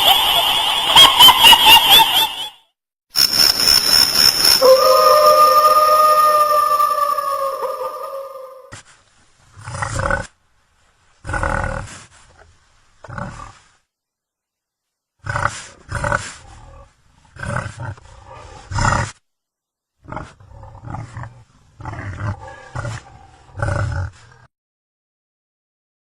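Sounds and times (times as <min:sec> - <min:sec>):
tiger roaring: 0:11.2 - 0:12.1, 0:15.2 - 0:19.2, 0:20.0 - 0:24.5.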